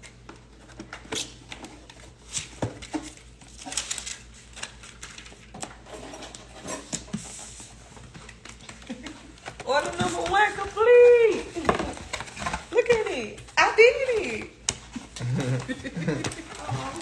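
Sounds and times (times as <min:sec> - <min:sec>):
objects being handled: 0:00.0 - 0:17.0.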